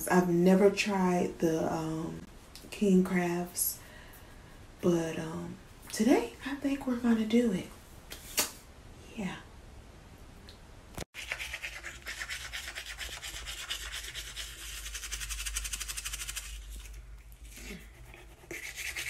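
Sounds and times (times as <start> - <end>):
toothbrush scrubbing teeth: 11.2 - 19.0.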